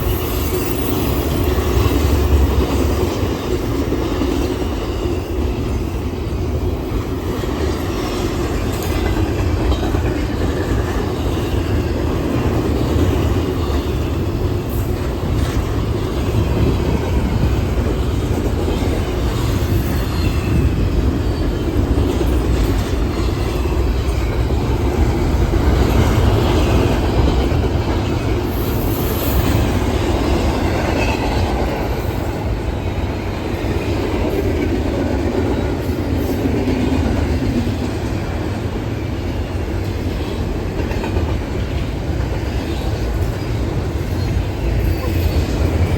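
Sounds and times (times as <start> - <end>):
high wheel squeal: 0.0 - 1.9
train rumbling on rails: 0.0 - 45.9.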